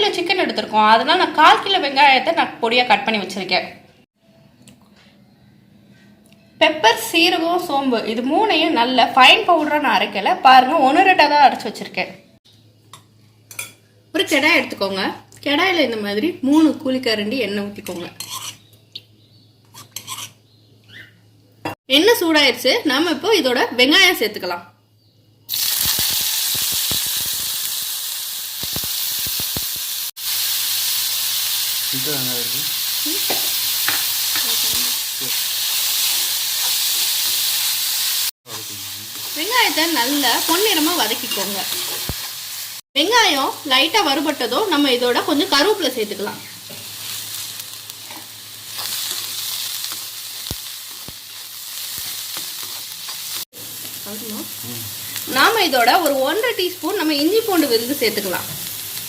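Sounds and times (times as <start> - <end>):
onions sizzling in hot oil: 12.8 - 18.7, 19.7 - 20.4, 25.5 - 59.0
oil popping and crackling: 25.5 - 32.0, 46.6 - 54.4.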